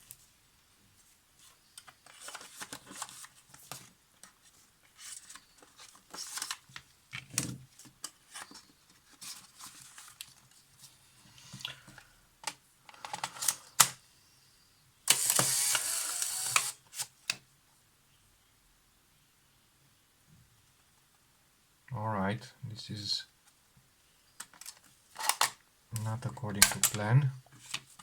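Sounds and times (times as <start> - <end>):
camera motor and gears running: 15.1 - 16.8
camera shutter click: 15.1 - 16.8.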